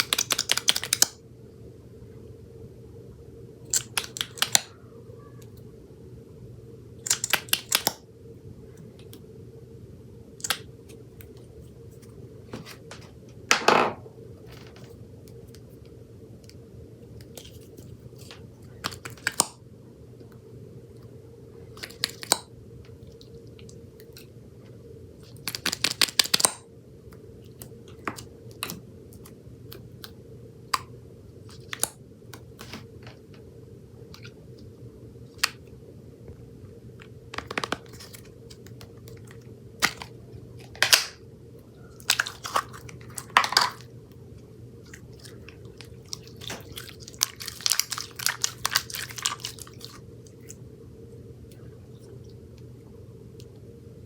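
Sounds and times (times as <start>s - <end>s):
faint steady hum: 0.0s - 54.0s
wet crackling: 44.8s - 50.6s.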